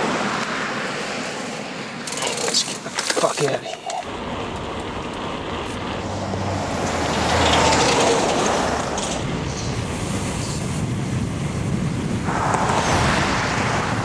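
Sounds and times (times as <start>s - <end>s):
bicycle tyre noise: 0.2s - 14.0s
wind rushing over microphone: 4.1s - 14.0s.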